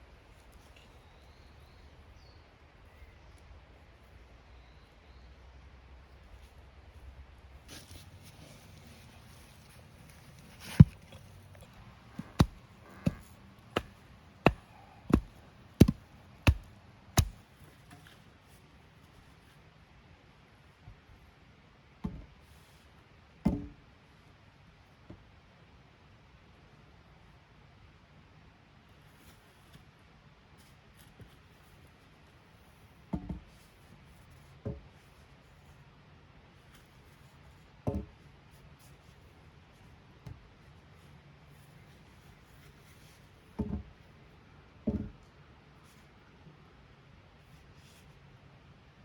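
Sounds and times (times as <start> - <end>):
hand tool striking wood: 10.6 - 17.4
sharp hollow knocks: 11.7 - 17.4.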